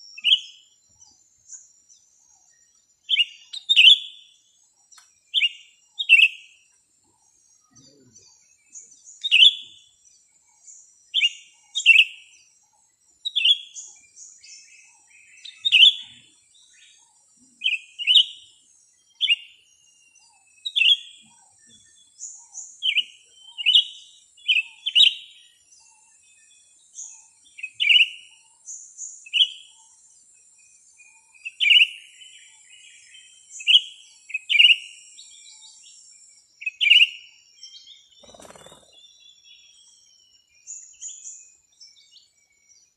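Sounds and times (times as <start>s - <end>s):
small songbird chirping: 0.0s - 42.9s.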